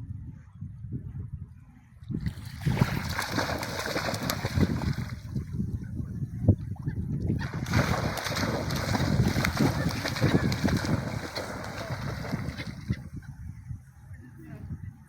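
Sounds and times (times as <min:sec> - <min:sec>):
wind buffeting microphone: 0:00.0 - 0:15.0
sea waves washing ashore: 0:02.4 - 0:05.2, 0:07.5 - 0:12.9.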